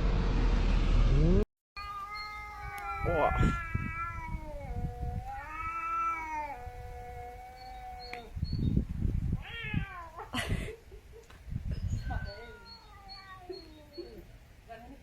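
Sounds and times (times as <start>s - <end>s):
cat yowling: 1.8s - 8.4s, 9.4s - 10.3s, 12.1s - 14.2s
cat hissing: 2.0s - 7.9s.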